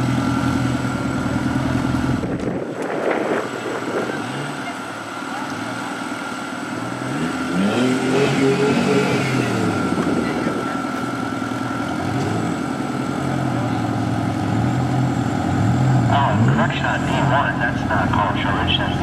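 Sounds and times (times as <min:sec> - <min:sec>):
buggy engine revving: 0:00.0 - 0:19.0.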